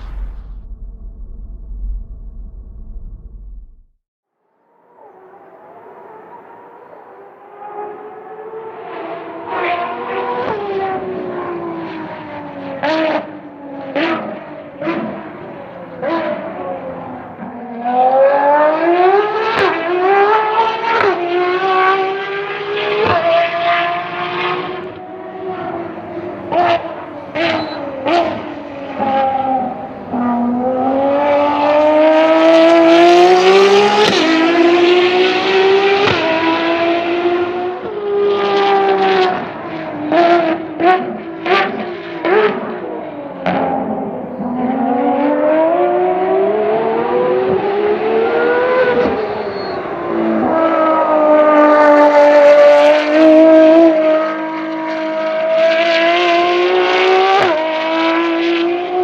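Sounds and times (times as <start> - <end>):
engine blips and pops: 0.0 - 4.0
car engine accelerating hard: 5.1 - 59.0.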